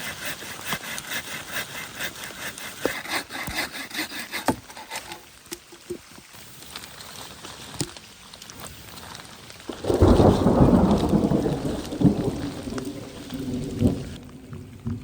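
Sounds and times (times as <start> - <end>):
rain falling: 5.1 - 15.0
raindrop ticks: 5.4 - 15.0
thunder rumble: 9.7 - 15.0.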